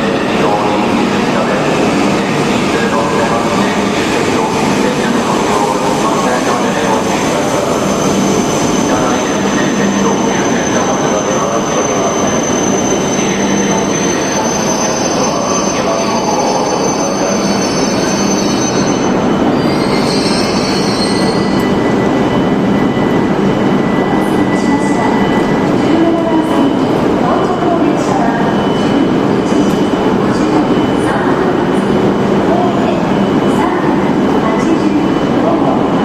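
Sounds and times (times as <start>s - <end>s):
train running and braking: 0.0s - 36.0s
high-pitched brake squeal: 7.7s - 23.1s.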